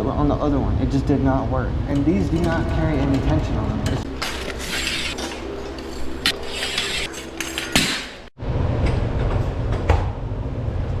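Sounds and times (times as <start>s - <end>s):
metal hardware knocks and clanks: 1.9s - 4.5s.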